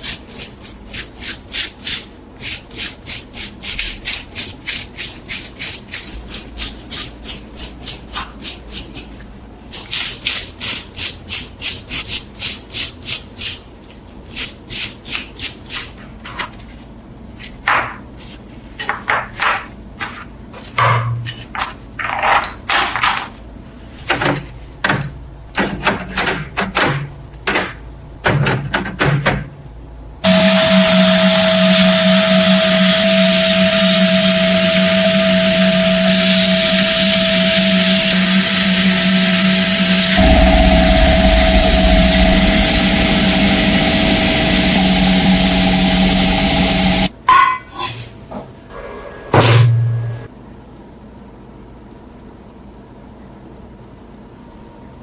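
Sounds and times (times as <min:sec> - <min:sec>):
filing metal by hand: 0:00.0 - 0:09.1
electric power tool humming: 0:30.2 - 0:47.1.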